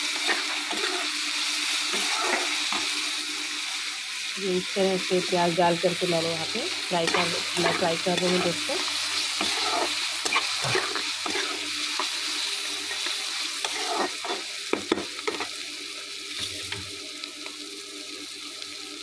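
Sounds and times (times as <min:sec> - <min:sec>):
onion and chilli sizzling in oil: 0:00.0 - 0:19.0
spatula scraping and knocking pan: 0:09.4 - 0:12.1, 0:12.9 - 0:15.5.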